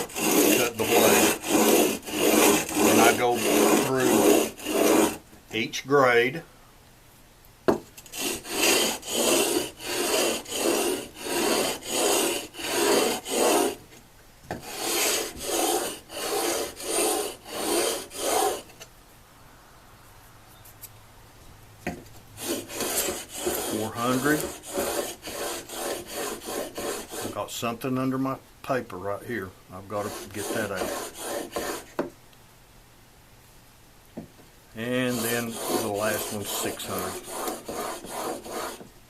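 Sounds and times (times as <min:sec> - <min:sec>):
chisel rasping on sandpaper: 0:00.0 - 0:05.2, 0:08.1 - 0:13.8, 0:14.6 - 0:18.8, 0:22.4 - 0:27.4, 0:29.8 - 0:32.0, 0:34.8 - 0:38.9.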